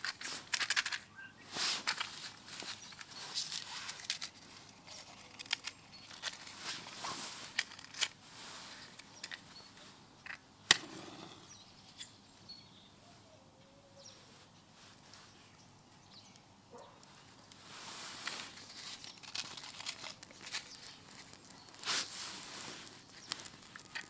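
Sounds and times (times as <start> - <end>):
kindling crackling and snapping: 0.0 - 11.6, 16.3 - 24.0
loud sharp snap of wood: 10.7 - 11.4.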